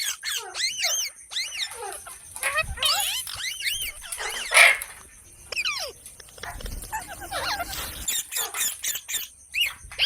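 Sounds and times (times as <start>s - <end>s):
parrot chirps and calls: 0.0s - 10.0s
parrot squawk: 0.3s - 5.0s.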